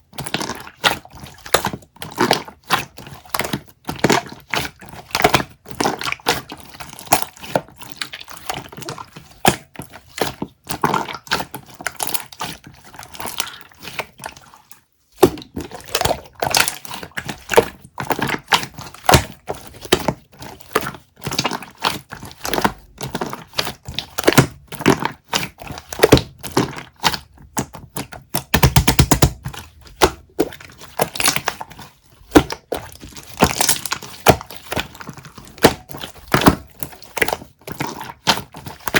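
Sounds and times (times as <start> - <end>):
taps clicks and crackles: 27.5 - 30.5.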